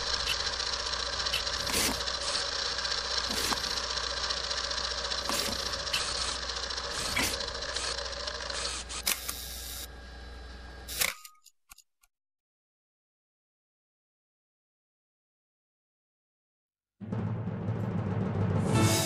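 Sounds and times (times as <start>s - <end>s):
projector clicks: 0.0s - 0.6s, 1.2s - 2.4s
film projector clatter: 0.0s - 9.4s.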